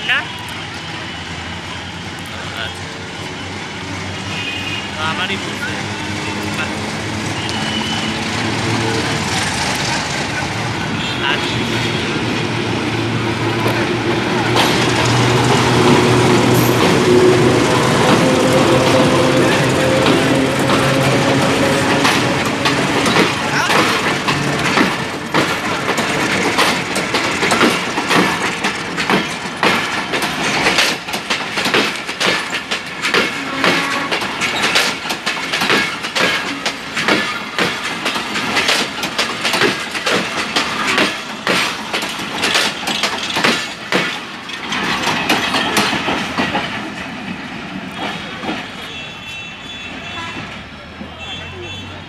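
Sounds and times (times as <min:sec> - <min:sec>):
train wheels clicking over rail joints: 0:05.2 - 0:10.8, 0:11.5 - 0:49.0.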